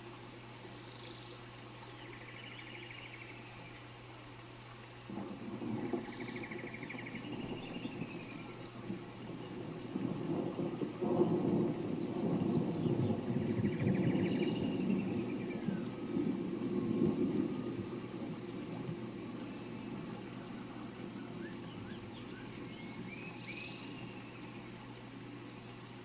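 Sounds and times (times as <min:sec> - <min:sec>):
rain hiss: 0:00.0 - 0:26.0
thunder rumble: 0:05.1 - 0:23.3
birds chirping and trilling: 0:11.2 - 0:16.0, 0:19.4 - 0:24.6.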